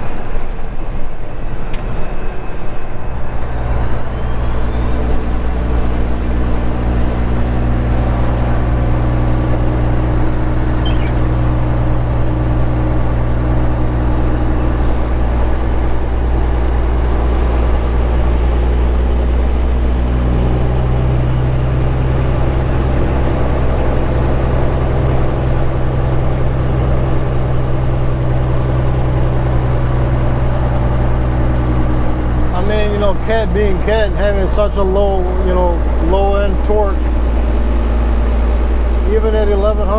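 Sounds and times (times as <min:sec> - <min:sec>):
diesel truck engine droning: 0:00.0 - 0:39.9
faint high whistle: 0:10.8 - 0:11.2.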